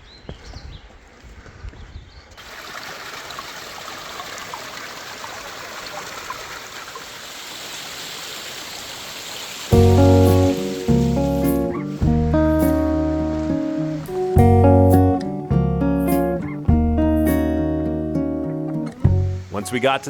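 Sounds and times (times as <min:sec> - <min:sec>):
footsteps on trail: 0:00.0 - 0:02.7
waterfall rushing: 0:02.4 - 0:14.4, 0:19.1 - 0:20.0.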